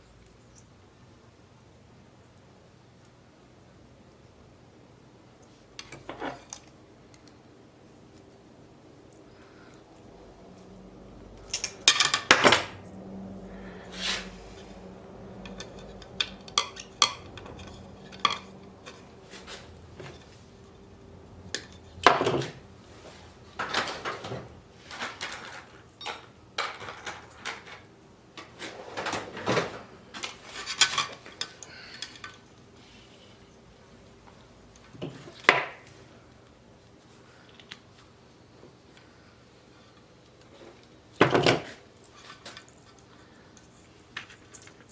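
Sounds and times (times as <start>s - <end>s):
metal clanking on metal: 14.8s - 20.4s.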